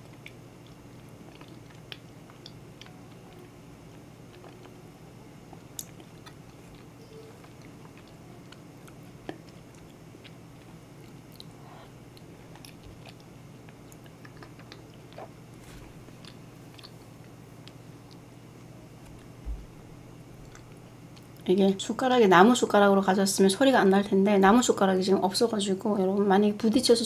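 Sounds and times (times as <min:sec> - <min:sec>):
person chewing: 0:00.0 - 0:18.3.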